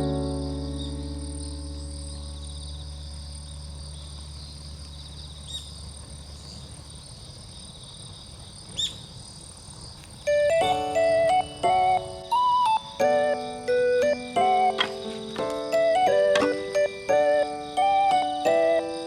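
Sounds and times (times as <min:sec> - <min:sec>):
bright music notes: 0:00.0 - 0:02.6, 0:10.3 - 0:19.0
low musical chord: 0:00.0 - 0:04.2, 0:10.3 - 0:19.0
insects chirring: 0:00.0 - 0:19.0.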